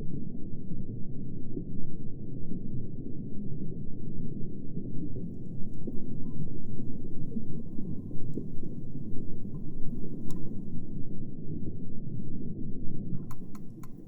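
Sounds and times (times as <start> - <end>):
muffled underwater rumbling: 3.7 - 11.7
faint clicks: 5.3 - 10.8, 13.2 - 14.0.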